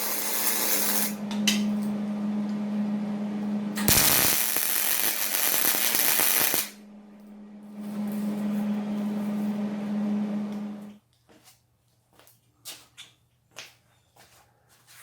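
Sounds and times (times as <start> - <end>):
disc grinder grinding steel: 0.0 - 1.2.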